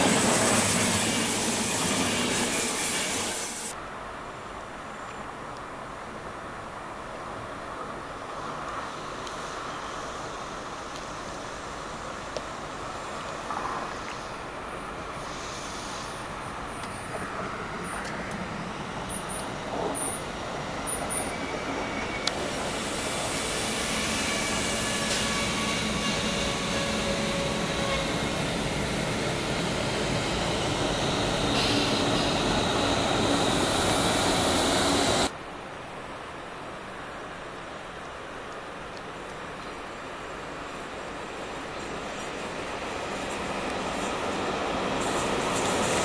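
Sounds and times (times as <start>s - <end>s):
train wheels rolling on rails: 0.0s - 3.8s, 7.7s - 46.0s
electric locomotive rumble: 13.5s - 35.3s.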